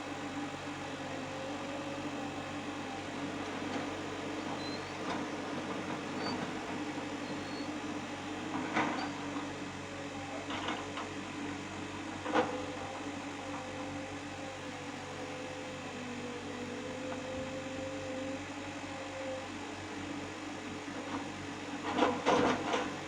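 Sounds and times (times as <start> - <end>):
diesel engine running: 0.0 - 13.9.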